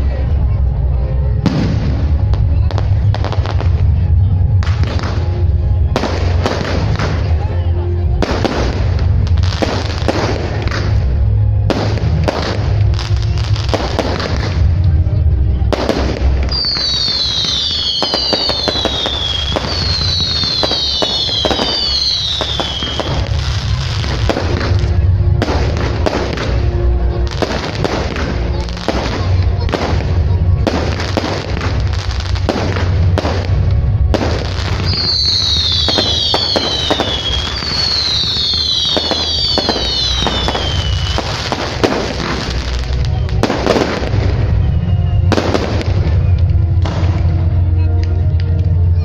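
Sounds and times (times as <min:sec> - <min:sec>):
music: 0:00.0 - 0:49.0
fireworks bangs and booms: 0:01.3 - 0:47.6
whistling firework shells: 0:15.8 - 0:24.4, 0:34.2 - 0:46.4.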